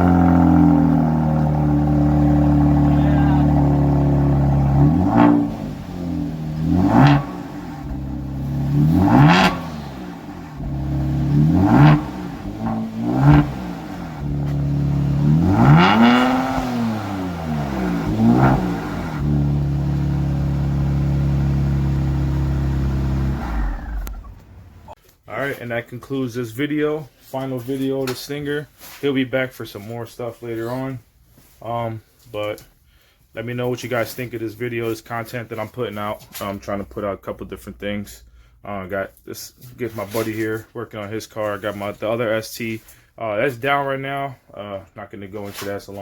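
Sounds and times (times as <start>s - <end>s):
car engine idling: 0.0s - 25.0s
engine throttle blips: 0.0s - 25.0s.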